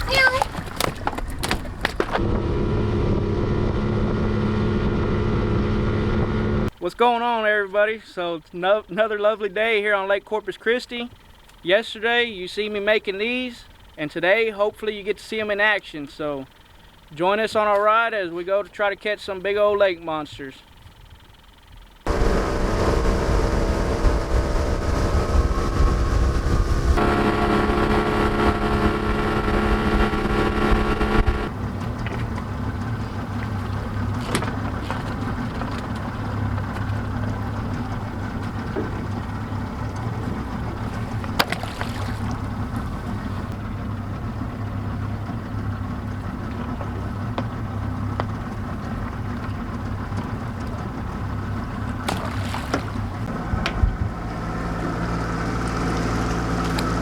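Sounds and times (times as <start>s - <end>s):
outboard motor running: 0.0s - 6.8s, 20.7s - 57.0s.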